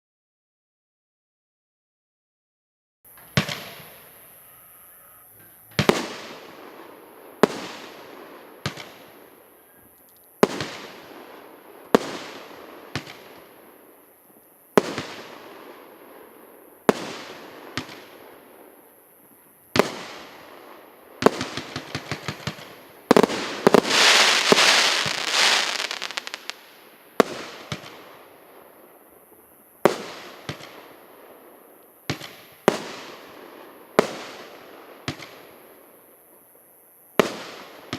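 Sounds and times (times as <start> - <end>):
small firework pops: 3.1 - 4.0, 5.4 - 6.5, 8.6 - 11.0, 11.9 - 15.3, 16.9 - 18.2, 21.2 - 28.2, 29.8 - 30.9, 31.8 - 33.2, 34.0 - 35.6, 37.2 - 37.9
dense firework crackling: 19.8 - 35.6.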